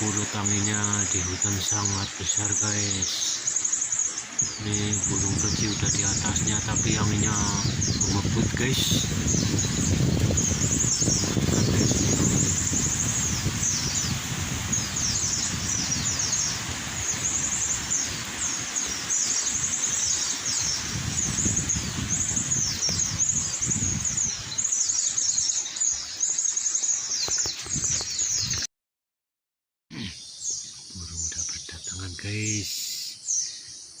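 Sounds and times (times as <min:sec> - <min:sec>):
small birds calling: 0:00.0 - 0:28.7, 0:29.9 - 0:34.0
wind buffeting microphone: 0:04.2 - 0:26.0, 0:27.2 - 0:28.7.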